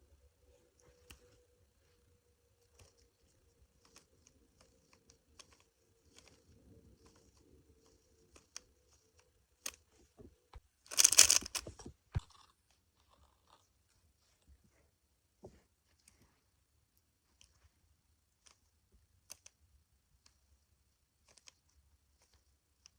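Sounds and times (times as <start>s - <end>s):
rattling cube turns: 2.6s - 10.2s, 10.9s - 13.6s
puzzle cube clicking: 3.8s - 9.9s, 10.9s - 12.4s.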